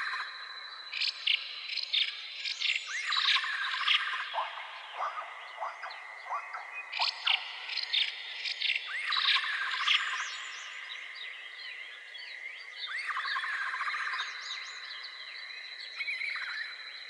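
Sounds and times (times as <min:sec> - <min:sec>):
trilling bird calls: 0:00.0 - 0:10.9
wild birds chirping: 0:00.0 - 0:17.0.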